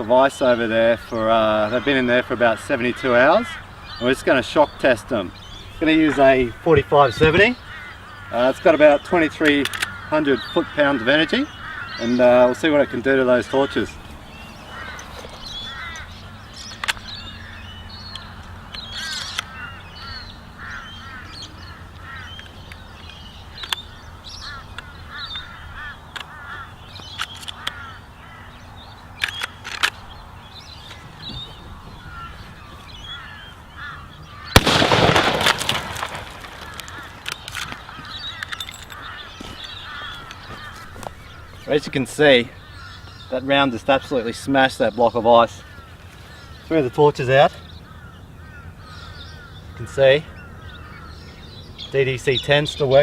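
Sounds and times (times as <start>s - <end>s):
birds chirping: 0.0s - 53.0s
rifle shot: 34.6s - 37.0s.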